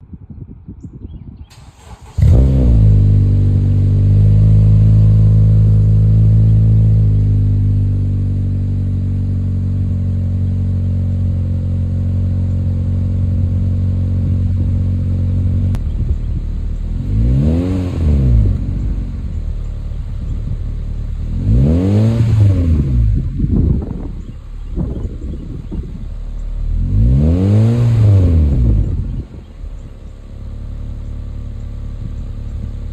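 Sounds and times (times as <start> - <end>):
car engine starting and idling: 1.5 - 32.9.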